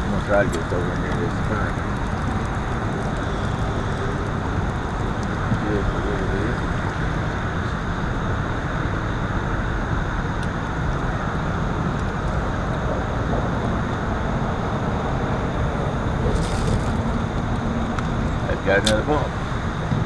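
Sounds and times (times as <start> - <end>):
boat motor running: 0.0 - 20.0.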